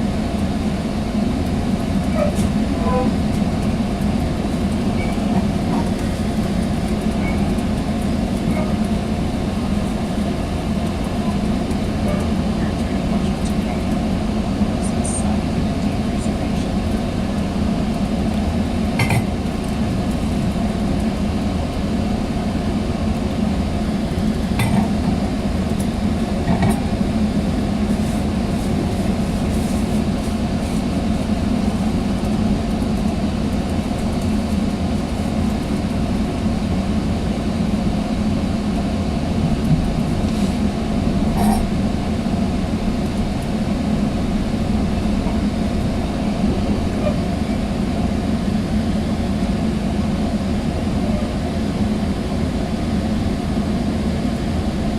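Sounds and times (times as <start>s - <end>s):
train rumble inside coach: 0.0s - 54.9s.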